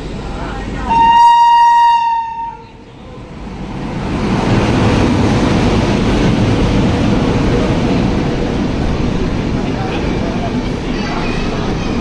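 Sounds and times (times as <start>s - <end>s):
passing express train rumble: 0.0s - 12.0s
train horn: 0.9s - 2.8s.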